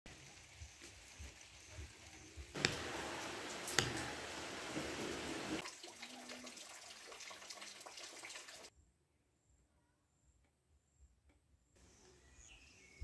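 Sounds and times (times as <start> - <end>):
rain falling: 0.1 - 5.7
single raindrops striking: 2.5 - 5.7.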